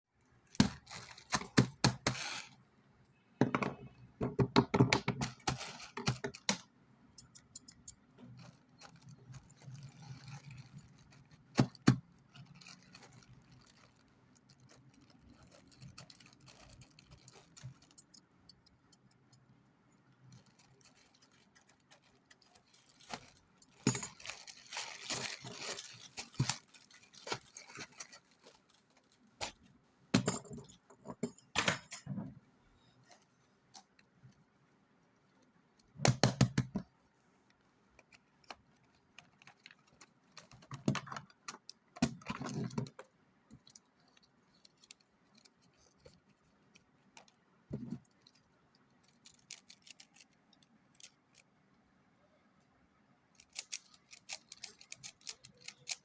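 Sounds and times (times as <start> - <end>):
packaging rustling: 0.6 - 2.6, 8.3 - 18.0, 20.2 - 29.7
small plastic clicks and rattles: 4.4 - 19.5, 20.1 - 29.6, 37.9 - 51.5, 53.4 - 56.0.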